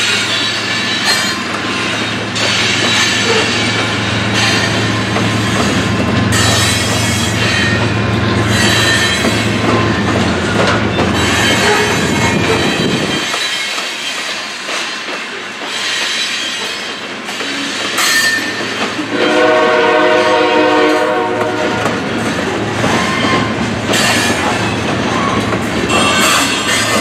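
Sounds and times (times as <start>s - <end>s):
train wheels clattering over rail joints: 0.0s - 19.2s, 20.8s - 27.0s
locomotive air horn: 19.1s - 22.0s.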